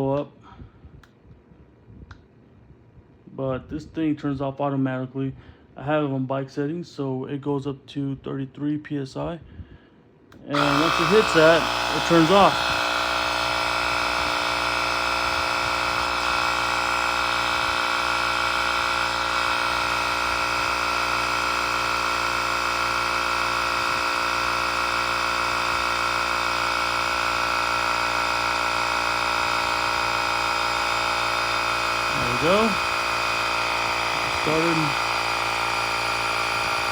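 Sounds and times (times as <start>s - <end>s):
small air compressor buzzing: 10.4s - 36.9s.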